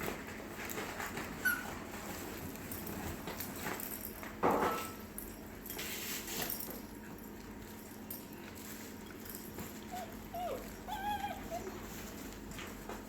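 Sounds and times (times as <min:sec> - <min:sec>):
puppies scuffling: 0:00.0 - 0:13.0
puppy whining: 0:01.2 - 0:02.0, 0:09.4 - 0:13.0
puppy yelping: 0:01.4 - 0:01.8, 0:09.8 - 0:12.0.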